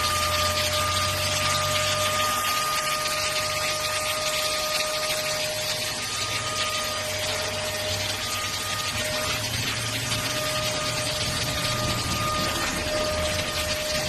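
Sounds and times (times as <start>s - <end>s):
stick vacuum cleaner running: 0.0s - 14.0s.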